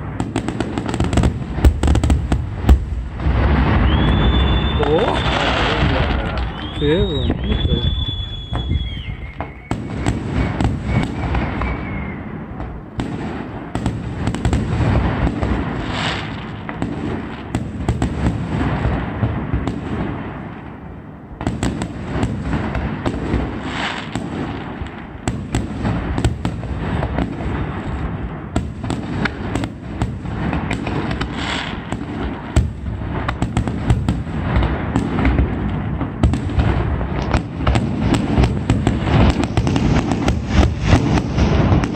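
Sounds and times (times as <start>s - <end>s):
firework whistling: 0.0s - 17.1s, 21.5s - 41.9s
fireworks bangs and crackles: 0.0s - 41.9s.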